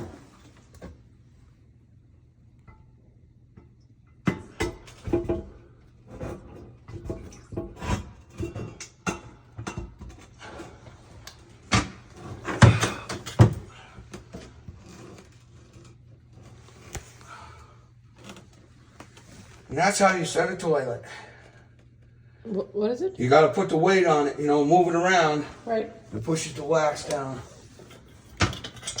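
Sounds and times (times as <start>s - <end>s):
toilet knocks clunks and scrapes: 4.2s - 11.0s, 11.6s - 15.3s.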